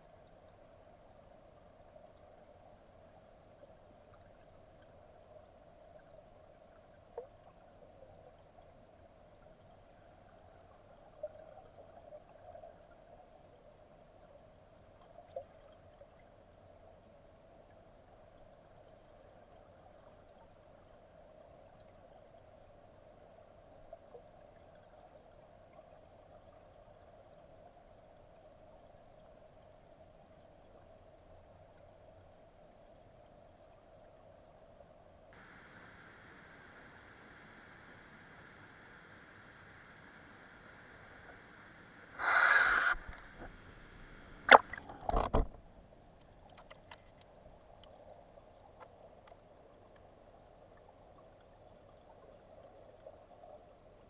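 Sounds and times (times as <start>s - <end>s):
stream rushing: 35.4s - 45.3s
faint clicks: 44.4s - 50.1s.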